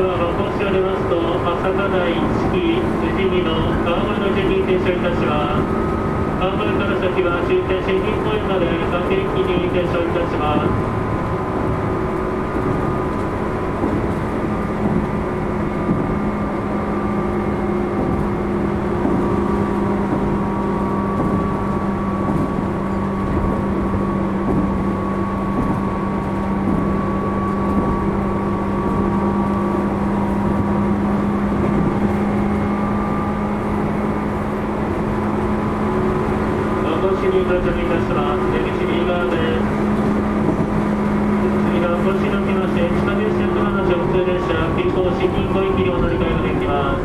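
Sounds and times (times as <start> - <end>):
train motor hum and whine: 0.0 - 47.0
train wheels rumbling on rail: 0.0 - 47.0.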